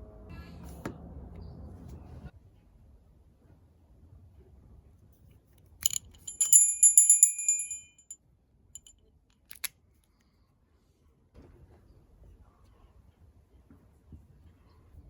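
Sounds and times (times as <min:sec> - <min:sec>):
bike bell clicks: 0:05.8 - 0:08.2
bike bell ringing: 0:05.8 - 0:08.2.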